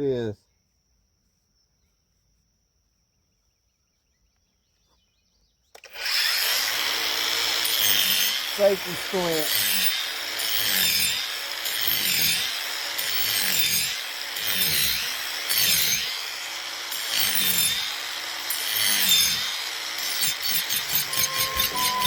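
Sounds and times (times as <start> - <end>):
angle grinder cutting wood: 5.8 - 22.0.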